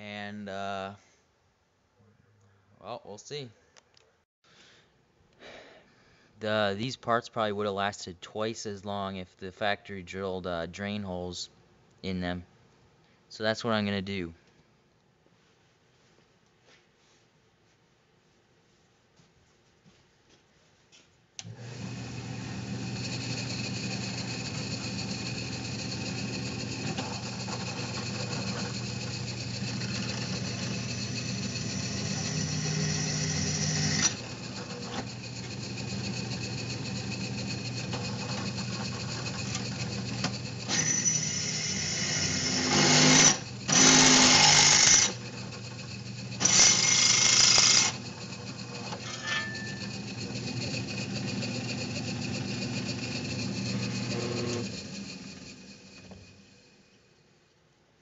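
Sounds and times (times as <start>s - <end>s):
power drill drilling through steel: 21.4s - 56.9s.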